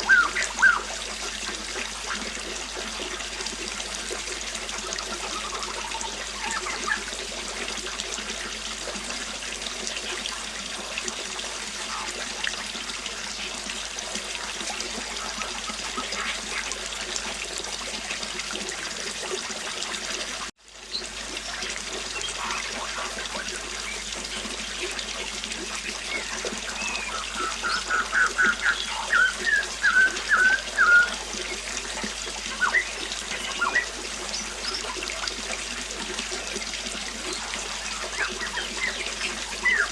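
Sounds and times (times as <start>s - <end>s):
bird chirps: 0.0s - 0.9s, 26.1s - 31.2s, 32.5s - 34.9s, 37.9s - 39.9s
bird singing fast notes: 0.0s - 1.0s, 5.1s - 7.1s, 25.7s - 35.0s, 37.4s - 39.9s
river water flowing: 0.0s - 39.9s.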